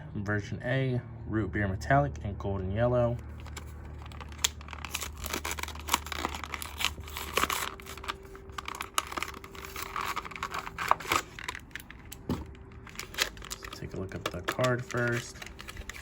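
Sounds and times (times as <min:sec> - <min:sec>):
plastic packaging being torn open: 0:03.2 - 0:16.0.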